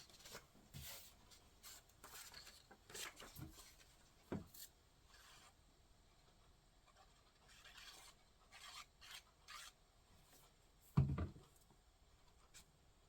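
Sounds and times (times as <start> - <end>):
dull thump on work surface: 11.0 - 11.3.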